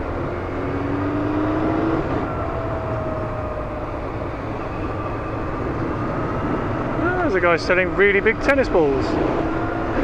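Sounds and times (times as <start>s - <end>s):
wind rush on microphone: 2.0s - 10.0s.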